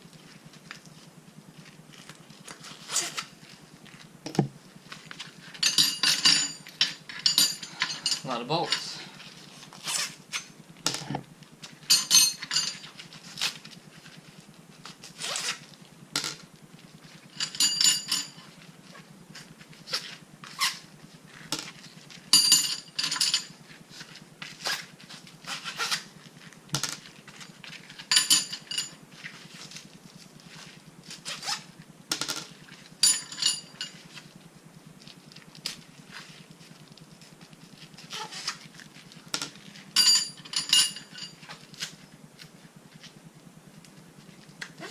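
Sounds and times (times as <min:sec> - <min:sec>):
metal bolts and washers clinking: 0:05.6 - 0:09.0, 0:11.9 - 0:12.9, 0:17.4 - 0:18.5, 0:22.4 - 0:23.5, 0:28.0 - 0:29.0, 0:32.1 - 0:34.0, 0:39.4 - 0:41.4.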